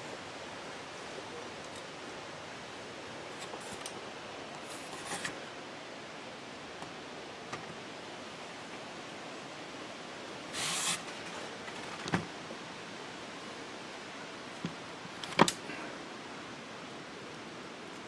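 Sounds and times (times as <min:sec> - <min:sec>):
background hiss: 0:00.0 - 0:18.0
scraping rustle: 0:04.6 - 0:05.4, 0:10.6 - 0:12.1.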